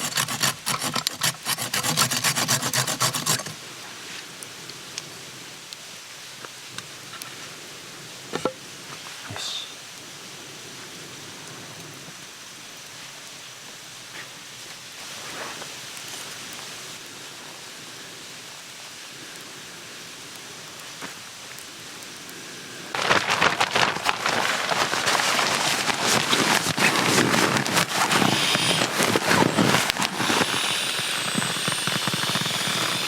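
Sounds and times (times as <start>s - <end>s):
outdoor background hiss: 0.0s - 33.0s
campfire crackling and popping: 14.6s - 17.3s, 20.3s - 33.0s.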